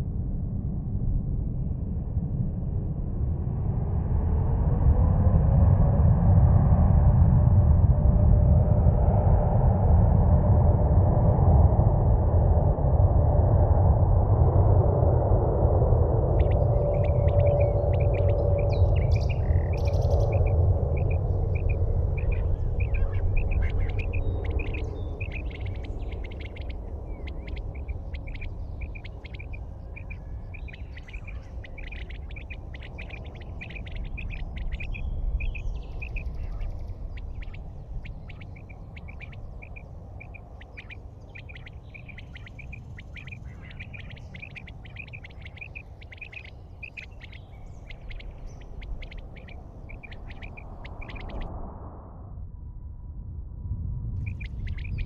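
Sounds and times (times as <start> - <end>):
low rumble: 0.0 - 55.0
bird chirping: 16.3 - 51.5, 54.2 - 55.0.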